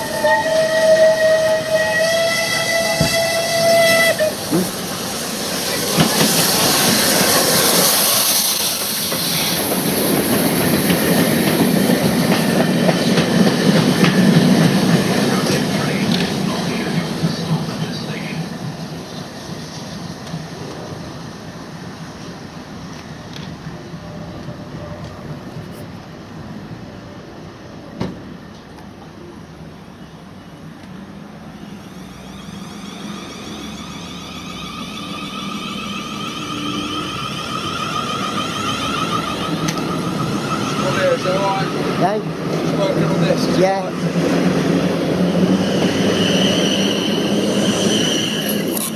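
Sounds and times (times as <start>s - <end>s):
steam hissing: 0.0s - 22.8s, 31.0s - 48.9s
wheels clicking over rail joints: 5.7s - 15.2s, 36.4s - 43.7s
vehicle whine approaching: 31.6s - 48.9s.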